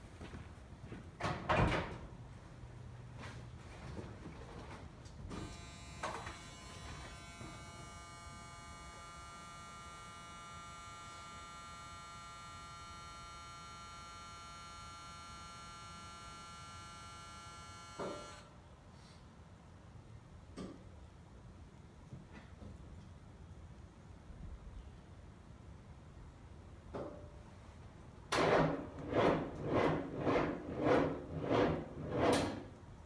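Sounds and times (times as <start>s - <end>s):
electric motor whine: 5.4s - 18.5s.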